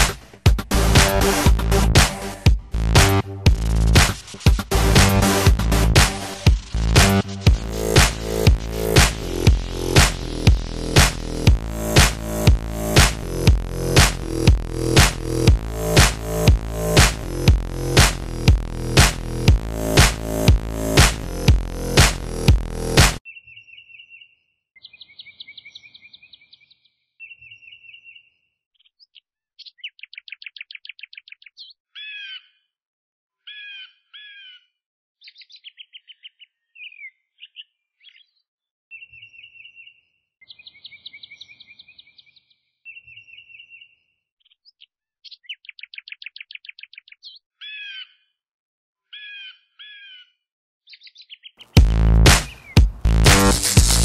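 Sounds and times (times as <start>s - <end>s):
birdsong chirps and trills: 23.2s - 32.6s, 33.4s - 48.3s.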